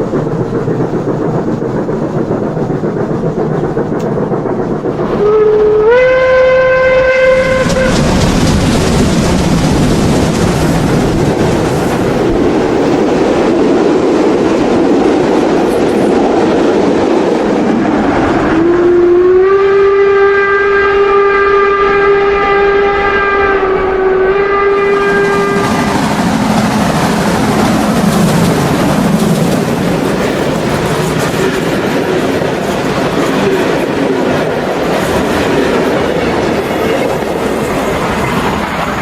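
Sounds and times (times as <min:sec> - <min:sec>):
model train rolling: 0:00.0 - 0:18.4, 0:24.8 - 0:39.0
steam whistle blast: 0:05.2 - 0:08.0, 0:18.6 - 0:25.7.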